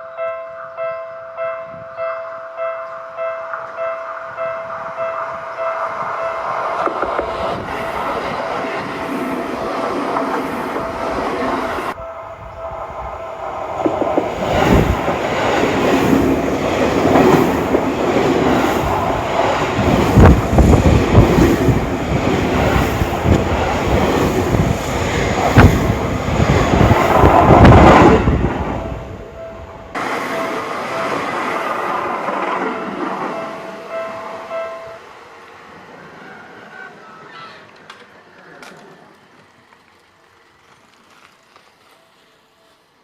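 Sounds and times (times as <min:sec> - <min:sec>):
level crossing warning bell: 0:00.0 - 0:06.9, 0:10.7 - 0:13.7, 0:29.2 - 0:35.3
train wheels clattering over rail joints: 0:12.8 - 0:28.4.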